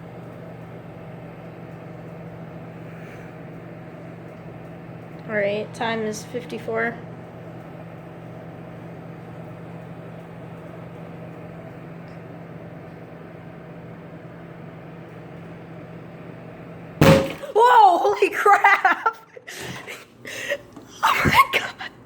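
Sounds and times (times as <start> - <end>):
microwave oven humming: 0.0 - 22.0.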